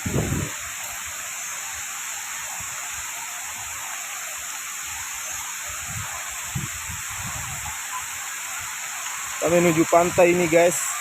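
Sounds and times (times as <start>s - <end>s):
wind buffeting microphone: 0.0s - 0.8s, 5.7s - 7.8s
strong wind hissing: 0.0s - 3.8s, 4.8s - 11.0s.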